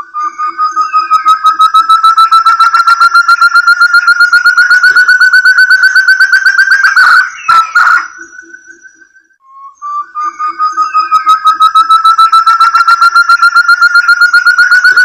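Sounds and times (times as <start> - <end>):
faint bird trill: 0.0 - 15.0
partridge whistled calls: 0.4 - 9.2.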